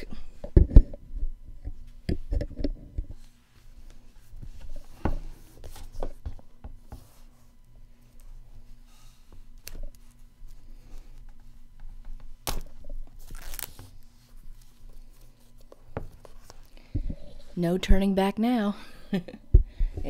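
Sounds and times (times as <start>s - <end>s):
plastic wrap rubbing: 13.1s - 15.6s.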